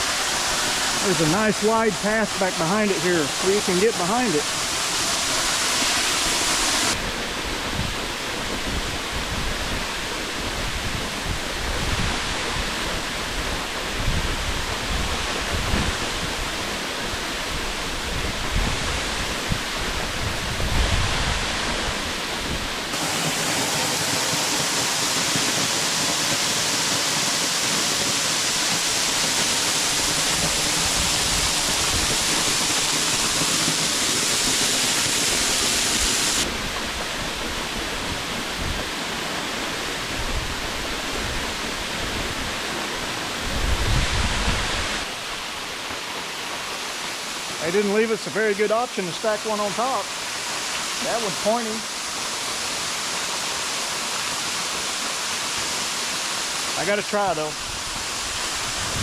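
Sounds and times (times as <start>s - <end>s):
waterfall rushing over rocks: 0.0s - 59.0s.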